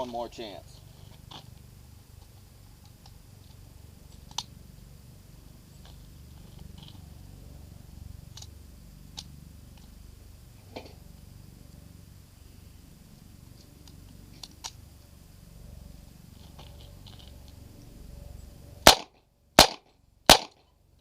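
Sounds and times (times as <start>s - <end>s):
low steady rumble: 0.0s - 21.0s
cartridges clicking into magazine: 18.9s - 20.6s.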